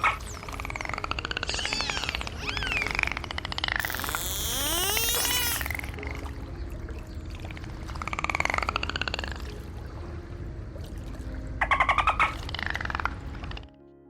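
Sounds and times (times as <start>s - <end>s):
dolphin buzzing pulsed call: 0.7s - 3.2s, 3.8s - 5.8s.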